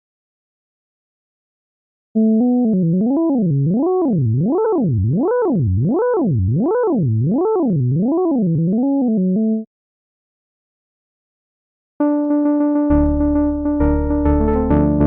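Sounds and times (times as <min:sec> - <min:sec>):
synthesized zigzag pitch tone: 0:02.4 - 0:09.6.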